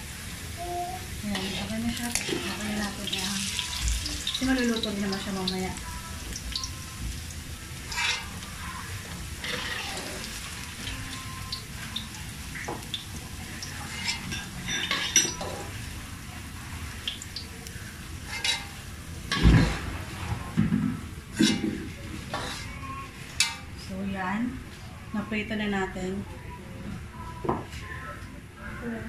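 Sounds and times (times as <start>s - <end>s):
potatoes sizzling in hot oil: 0.0s - 19.4s
metal spatula scraping a pan: 1.2s - 5.2s, 7.8s - 8.8s, 9.4s - 10.5s, 13.8s - 15.7s, 18.2s - 19.8s, 21.3s - 22.8s.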